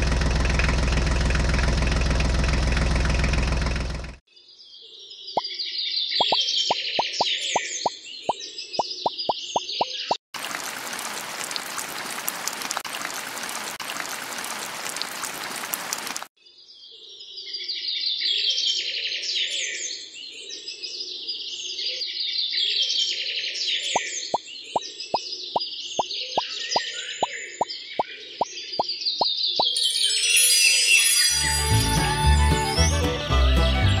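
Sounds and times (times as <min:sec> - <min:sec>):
birds chirping: 0:05.3 - 0:10.2
cartoon plop sound effects: 0:06.2 - 0:07.7
rain hissing: 0:10.4 - 0:16.3.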